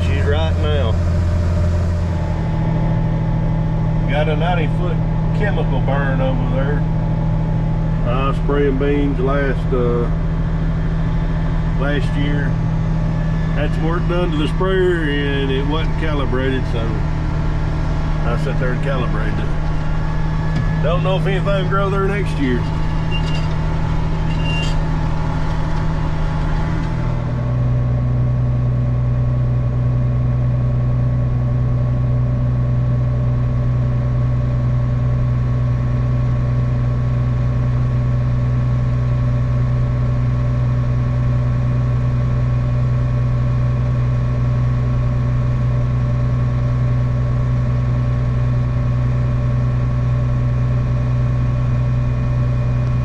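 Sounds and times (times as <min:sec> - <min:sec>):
diesel engine running under load: 0:00.0 - 0:53.0.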